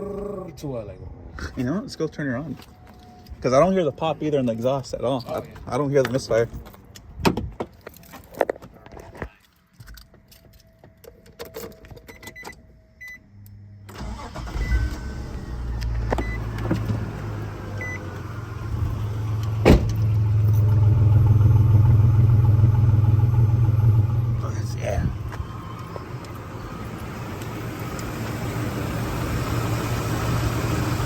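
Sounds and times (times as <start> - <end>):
car engine starting and idling: 13.2 - 31.0.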